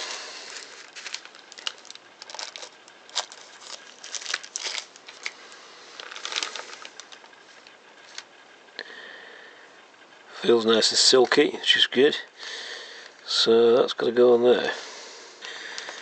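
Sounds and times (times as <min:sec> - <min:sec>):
packaging crinkling and rustling: 0:00.0 - 0:08.3.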